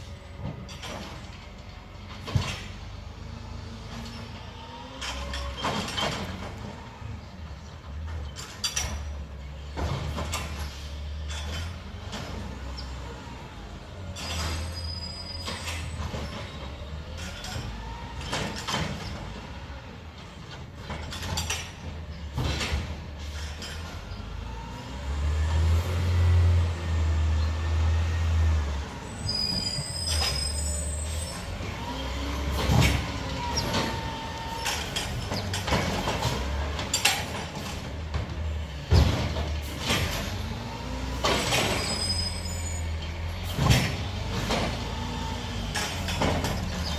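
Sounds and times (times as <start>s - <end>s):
garbage truck diesel engine: 0.0s - 46.9s
metallic clanks and bangs: 20.2s - 24.1s, 29.5s - 42.4s, 43.0s - 46.9s
hydraulic whines: 23.3s - 37.7s, 39.0s - 46.9s.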